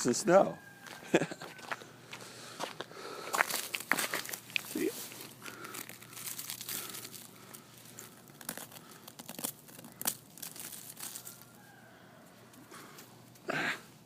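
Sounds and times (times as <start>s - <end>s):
crusted snow crunching: 2.6s - 13.6s.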